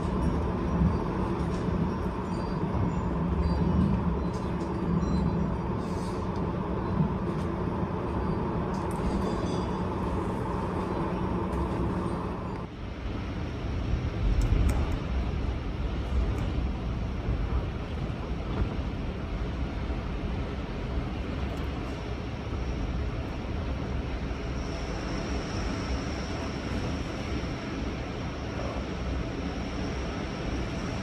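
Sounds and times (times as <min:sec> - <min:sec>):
storm wind gusting: 0:12.8 - 0:31.0.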